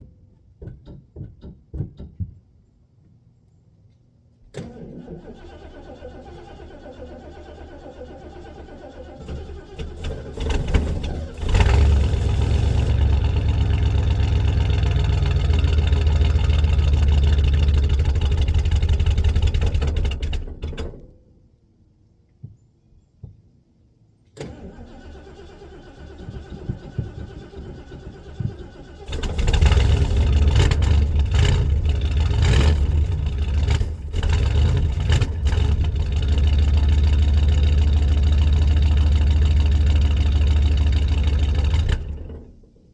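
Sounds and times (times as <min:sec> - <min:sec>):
loud engine running: 0:09.9 - 0:20.5, 0:28.9 - 0:42.4.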